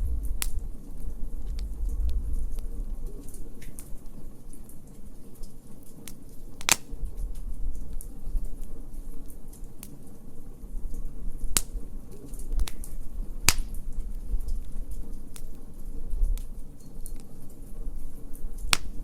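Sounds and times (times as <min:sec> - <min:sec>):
wood fire crackling: 0:00.0 - 0:19.0
loud sharp pops: 0:05.9 - 0:07.0, 0:13.5 - 0:13.8, 0:18.7 - 0:19.0.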